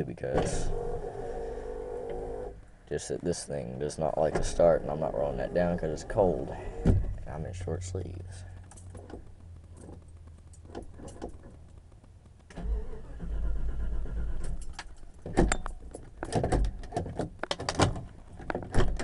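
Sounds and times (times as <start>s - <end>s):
starter cranking engine: 4.6s - 15.2s
sharp knocks and clicks: 8.5s - 12.6s, 14.6s - 19.0s.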